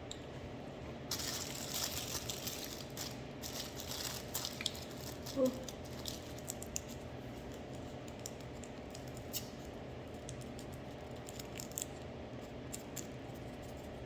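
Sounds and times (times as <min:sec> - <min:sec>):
steady low hum: 0:00.0 - 0:14.0
eating clicks and smacks: 0:06.4 - 0:12.1.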